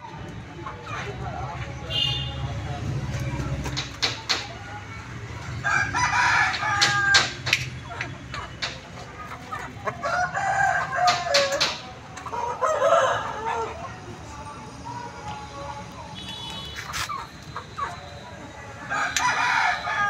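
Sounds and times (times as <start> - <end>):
roosters crowing: 5.4 - 7.6, 9.7 - 14.1, 16.4 - 20.0.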